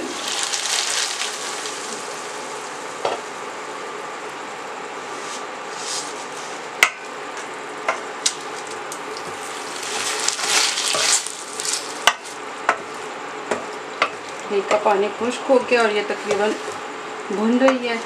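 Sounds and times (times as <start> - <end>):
liver sizzling in oil: 0.0 - 3.8, 8.3 - 17.3
wooden spoon scraping pan: 9.3 - 11.8.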